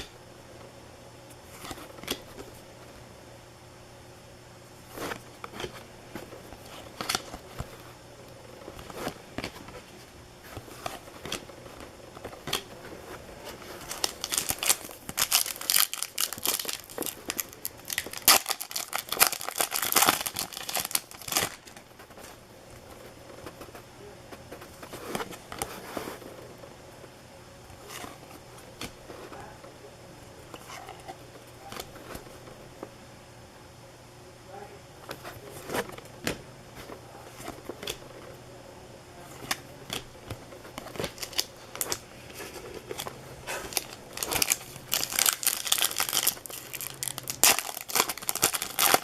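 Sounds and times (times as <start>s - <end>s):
cards being handled: 8.6s - 26.3s, 39.2s - 49.0s
foil wrappers crinkling and tearing: 12.2s - 22.3s, 40.6s - 49.0s.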